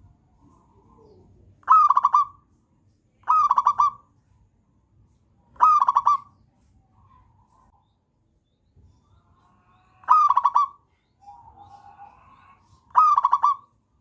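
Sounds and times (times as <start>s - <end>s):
dove cooing: 0.7s - 2.4s, 3.2s - 4.0s, 5.6s - 6.3s, 10.0s - 13.7s.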